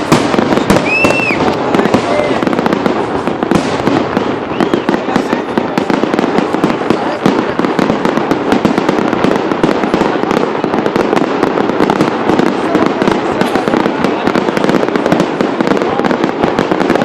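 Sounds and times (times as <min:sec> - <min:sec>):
firework whistle: 0:00.0 - 0:02.4, 0:03.6 - 0:05.6
fireworks crackling and popping: 0:00.0 - 0:17.0.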